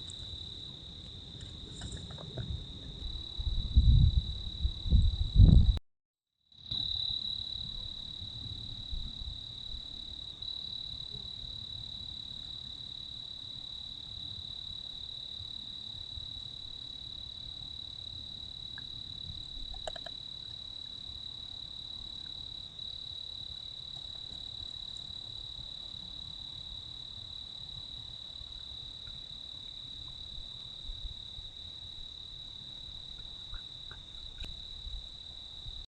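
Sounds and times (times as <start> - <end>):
wind rumble on microphone: 0.0 - 5.8, 7.6 - 10.0, 32.8 - 35.9
insect trilling: 19.7 - 20.6.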